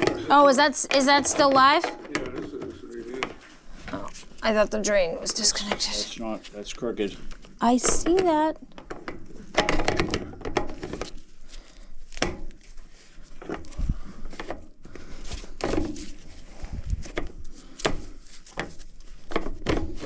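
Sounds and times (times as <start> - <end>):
tools knocking and clunking: 0.0 - 3.4, 7.6 - 11.2
footsteps: 0.0 - 8.6.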